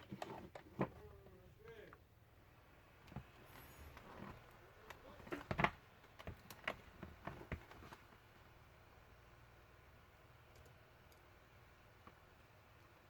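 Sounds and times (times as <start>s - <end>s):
laptop handling clicks and knocks: 5.3s - 8.1s.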